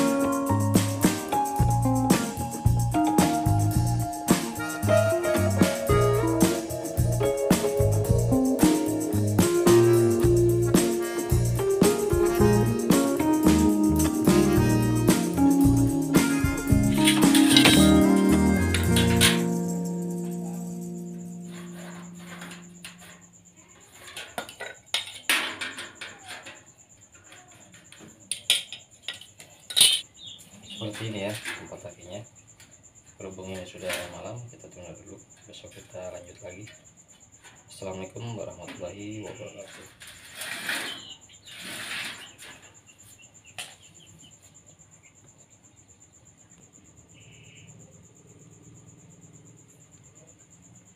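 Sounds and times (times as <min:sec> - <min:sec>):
cricket trilling: 0:00.0 - 0:50.9
metal tools clicking and scraping: 0:16.9 - 0:19.6, 0:23.8 - 0:26.6, 0:27.2 - 0:30.1.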